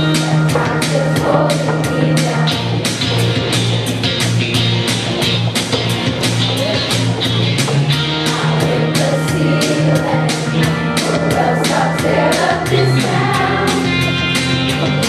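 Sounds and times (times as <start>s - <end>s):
voices singing over a beat: 0.0s - 3.3s, 7.7s - 15.0s.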